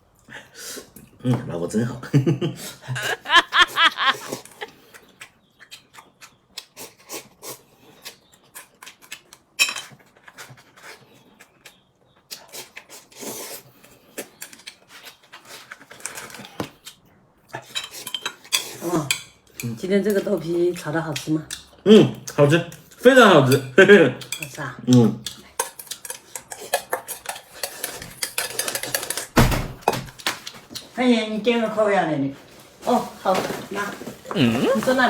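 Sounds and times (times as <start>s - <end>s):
eating noises: 2.9s - 9.5s, 20.6s - 29.3s, 34.2s - 35.0s
short vocal sound: 34.3s - 35.0s.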